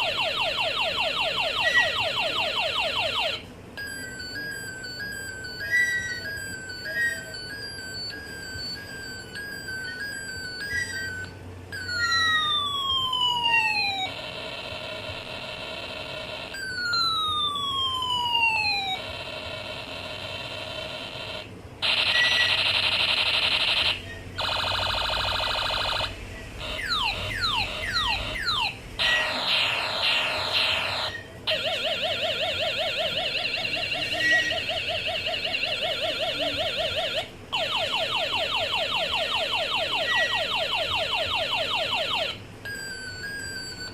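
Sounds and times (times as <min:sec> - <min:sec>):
electronic toy siren effects: 0:00.0 - 0:43.9.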